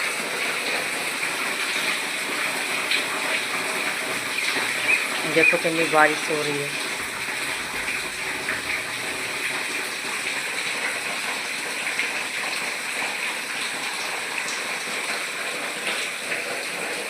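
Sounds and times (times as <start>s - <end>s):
heavy rain pouring: 0.0s - 17.0s
water splashing: 1.8s - 12.8s.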